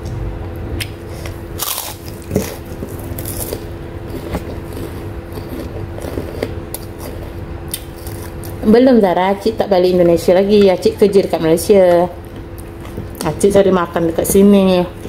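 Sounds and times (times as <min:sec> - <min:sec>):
steady low hum: 0:00.0 - 0:15.0
crunchy chewing: 0:00.8 - 0:08.6.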